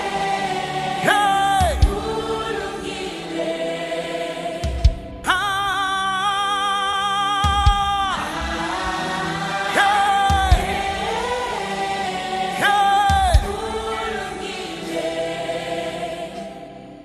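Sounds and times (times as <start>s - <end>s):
praise team singing with band: 0.0s - 17.0s
low beats: 1.6s - 2.5s, 10.3s - 11.6s.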